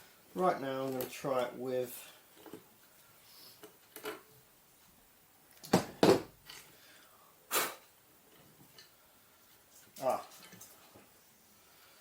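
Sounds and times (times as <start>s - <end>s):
person sniffing and exhaling: 6.9s - 7.9s.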